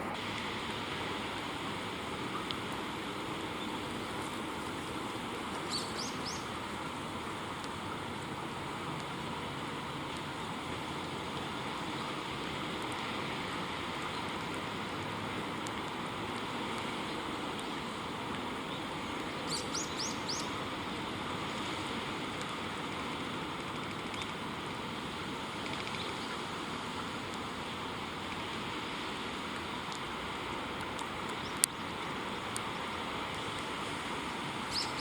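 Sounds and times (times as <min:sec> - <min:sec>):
background hiss: 0:00.0 - 0:35.0
kingfisher high piercing calls: 0:05.6 - 0:06.5, 0:19.4 - 0:20.6, 0:34.6 - 0:35.0.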